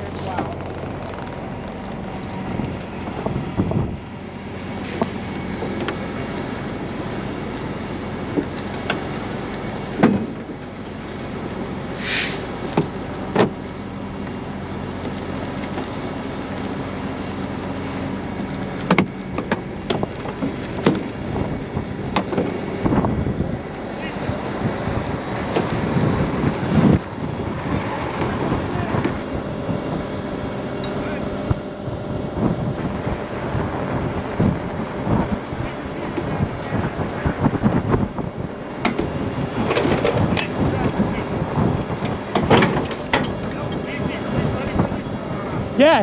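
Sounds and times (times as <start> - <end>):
diesel truck engine running: 0.0 - 46.0
air hissing: 11.9 - 12.6.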